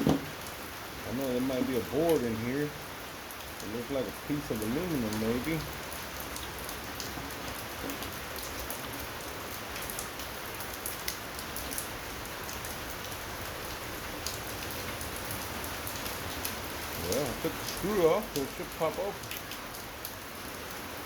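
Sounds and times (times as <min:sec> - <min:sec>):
steady rain falling: 0:00.0 - 0:21.0
sharp drip ticks: 0:02.0 - 0:07.2, 0:15.9 - 0:20.2.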